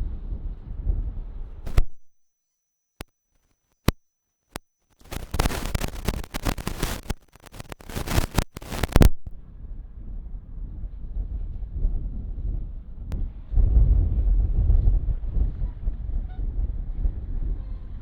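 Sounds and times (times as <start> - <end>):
wind rumble on microphone: 0.0 - 2.0, 5.2 - 18.0
crackling static: 1.6 - 2.2, 3.0 - 9.4
sharp clicks: 1.7 - 2.0, 5.0 - 9.4.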